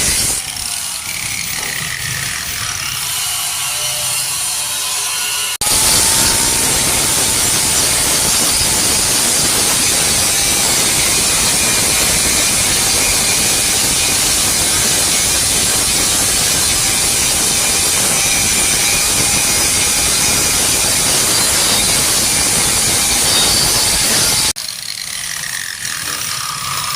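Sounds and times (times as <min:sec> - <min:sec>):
welding arc hissing sizzle: 0:05.6 - 0:24.6.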